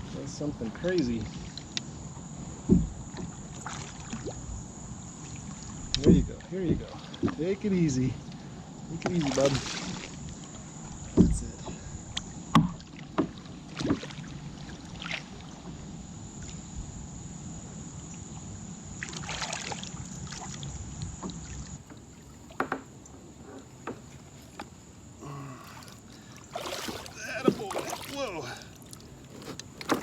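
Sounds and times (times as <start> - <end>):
knocks and clicks against a kayak: 2.6 - 3.5, 5.8 - 7.6, 10.4 - 14.2, 21.0 - 24.9, 29.2 - 30.0
water splashing: 2.6 - 4.5, 8.9 - 11.9, 12.5 - 15.8, 19.0 - 30.0.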